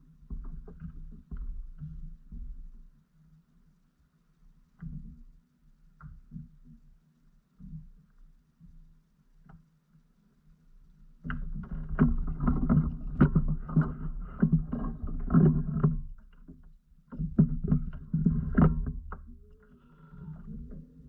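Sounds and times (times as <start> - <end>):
kayak knocks and splashes: 11.3 - 19.5.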